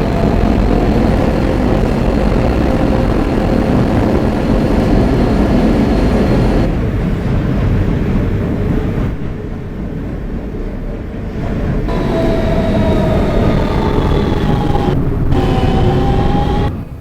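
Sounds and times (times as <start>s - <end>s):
subway wheels rumbling on rail: 0.0s - 17.0s.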